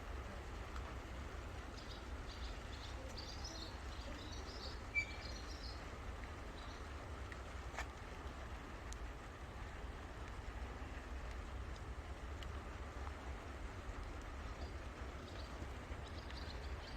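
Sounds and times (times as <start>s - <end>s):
light rain hiss: 0.0s - 16.9s
small birds chirping: 1.7s - 5.8s, 6.6s - 6.9s, 14.4s - 16.9s.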